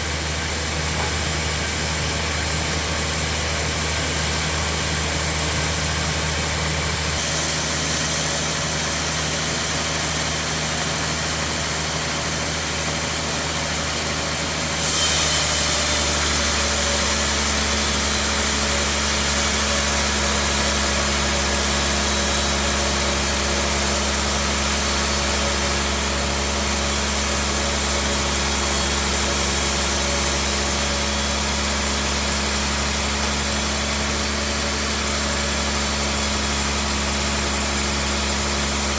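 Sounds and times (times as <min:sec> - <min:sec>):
bandsaw machinery droning: 0:00.0 - 0:38.9
hiss: 0:07.2 - 0:10.0.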